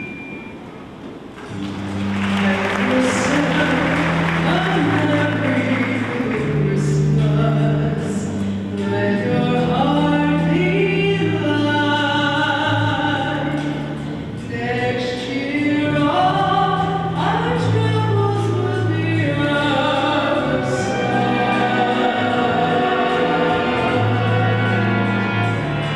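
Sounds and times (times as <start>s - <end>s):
choir singing sustained notes: 19.7s - 25.9s.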